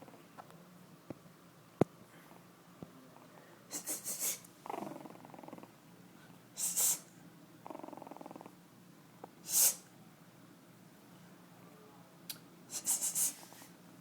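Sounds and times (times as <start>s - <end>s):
puppy growling: 4.6s - 5.8s, 7.6s - 8.6s.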